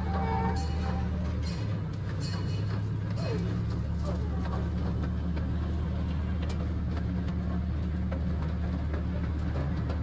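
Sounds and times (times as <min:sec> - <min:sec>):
miniature train engine drone: 0:00.0 - 0:10.0.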